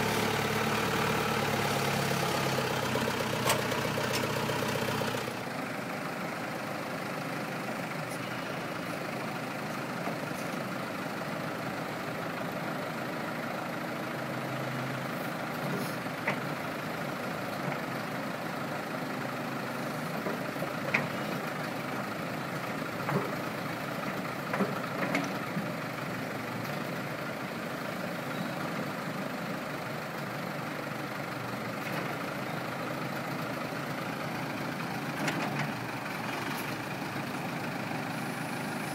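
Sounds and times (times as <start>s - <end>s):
backhoe engine running: 0.0s - 38.9s.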